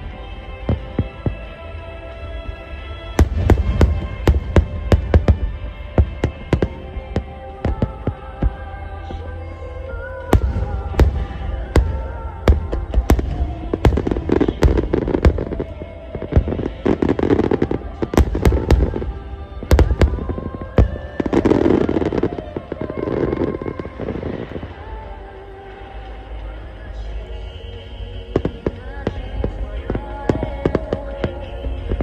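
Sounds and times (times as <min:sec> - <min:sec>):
fireworks bursting: 0:00.0 - 0:32.0
music: 0:00.0 - 0:32.0.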